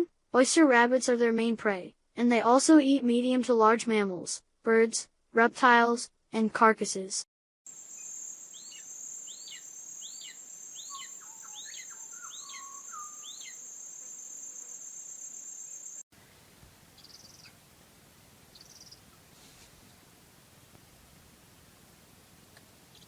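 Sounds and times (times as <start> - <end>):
high insect trill: 7.7 - 16.1
bird calling falling notes: 16.2 - 17.6.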